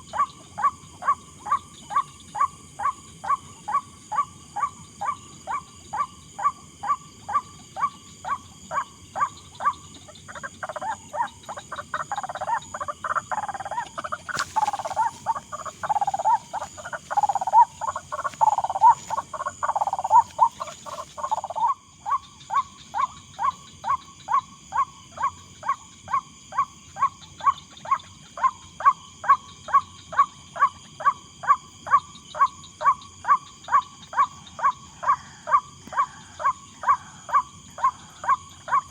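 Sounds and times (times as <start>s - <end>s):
waterhen croaking calls: 6.8s - 26.2s.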